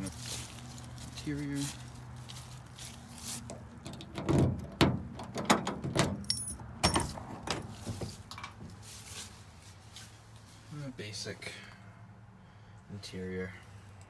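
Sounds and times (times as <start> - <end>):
truck door opening: 3.5 - 8.7.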